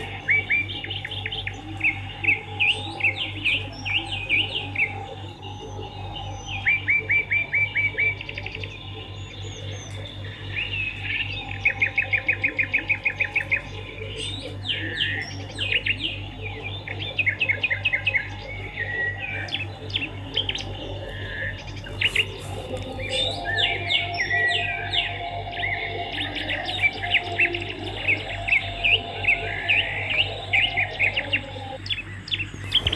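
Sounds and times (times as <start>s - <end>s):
steady low hum: 0.0s - 32.9s
swiftlets twittering: 17.0s - 32.9s.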